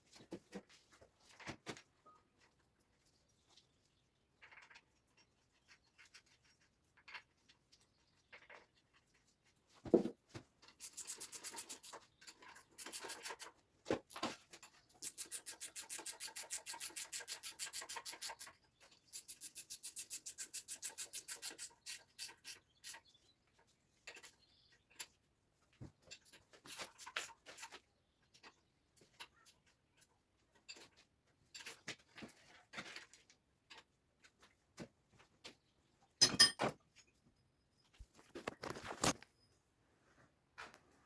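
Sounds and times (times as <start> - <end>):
rapid rubbing strokes: 10.8 - 12.0.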